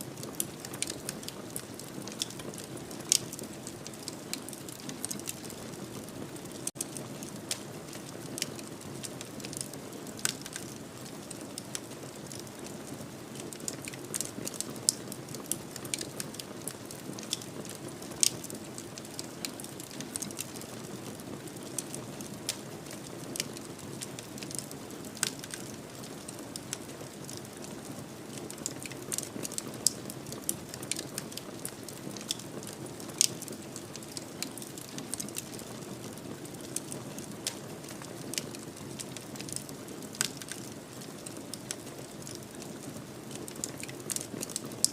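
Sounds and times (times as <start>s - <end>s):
wood fire crackling and popping: 0.0s - 44.9s.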